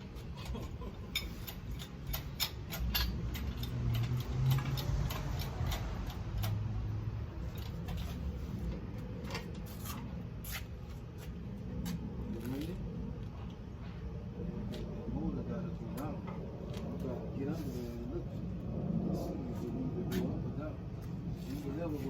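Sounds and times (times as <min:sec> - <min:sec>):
metal tools clicking and tapping: 0:00.0 - 0:08.1
low rumble: 0:11.5 - 0:21.9.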